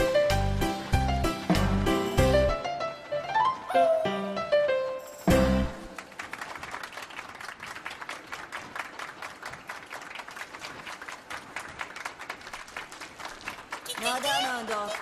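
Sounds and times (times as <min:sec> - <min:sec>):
crowd applauding: 0:05.6 - 0:15.0.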